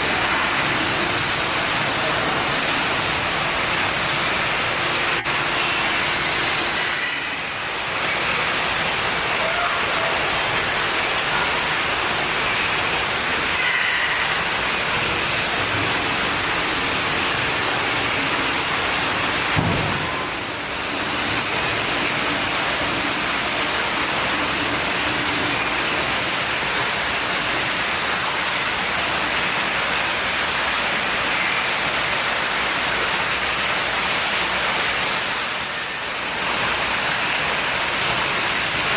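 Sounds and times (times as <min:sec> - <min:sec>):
rushing falling water: 0:00.0 - 0:38.9.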